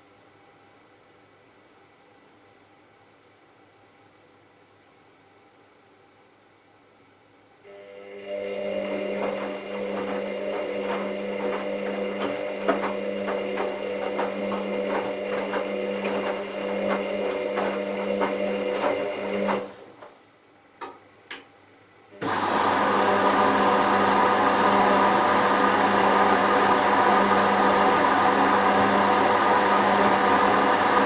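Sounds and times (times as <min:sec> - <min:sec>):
washing machine motor hum: 0:07.7 - 0:20.2, 0:22.1 - 0:31.0
loud steady whir: 0:22.2 - 0:31.0.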